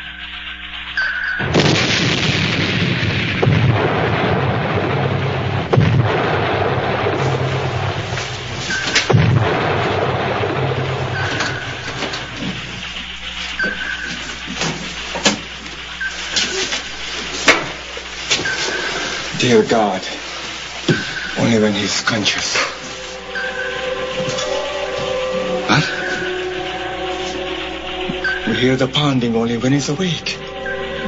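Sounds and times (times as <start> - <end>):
deep explosion blasts: 1.4 - 14.4.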